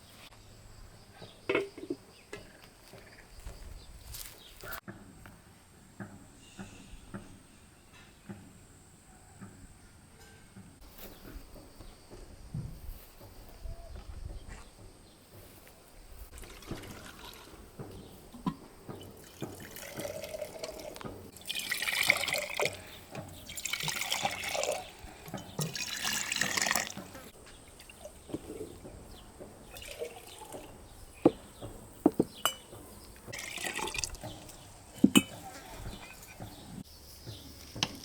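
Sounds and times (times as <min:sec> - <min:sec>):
water being poured: 0:16.3 - 0:17.8, 0:18.4 - 0:28.9, 0:29.6 - 0:30.8, 0:33.3 - 0:35.4.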